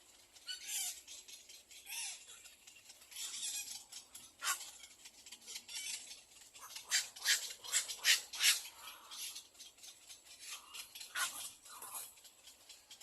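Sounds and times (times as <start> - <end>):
chicks making raspy hissing bursts: 3.2 - 4.8, 6.6 - 9.4, 10.4 - 12.1.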